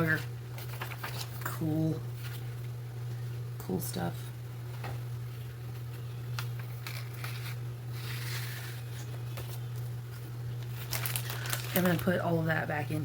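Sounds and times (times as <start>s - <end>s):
low electrical hum: 0.0s - 13.0s
paper rustling: 0.6s - 1.6s, 5.8s - 12.3s.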